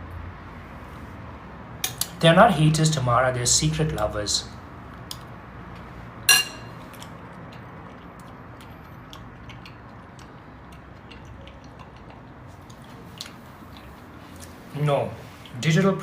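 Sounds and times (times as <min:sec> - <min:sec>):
cutlery clinking against dish: 0:06.3 - 0:06.8.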